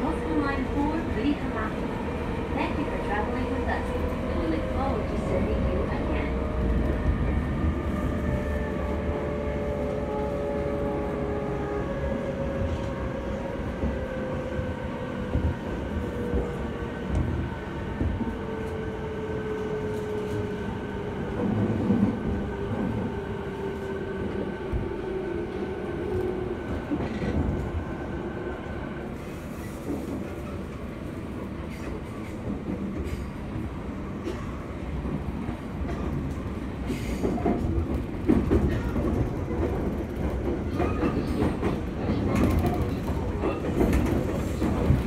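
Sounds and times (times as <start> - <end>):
train wheels rumbling on rail: 0.0 - 45.0.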